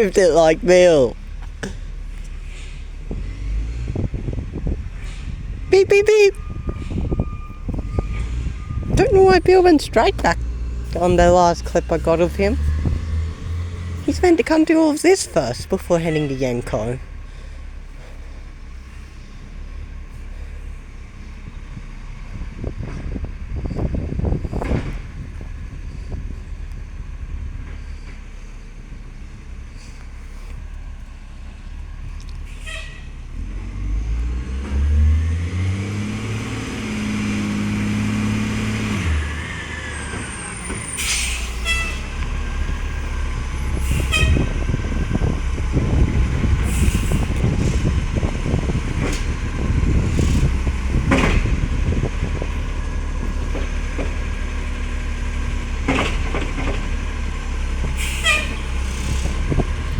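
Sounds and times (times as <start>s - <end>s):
truck diesel engine revving: 0.0s - 59.9s
air brake hisses: 40.9s - 42.1s, 46.7s - 47.8s, 58.0s - 59.4s.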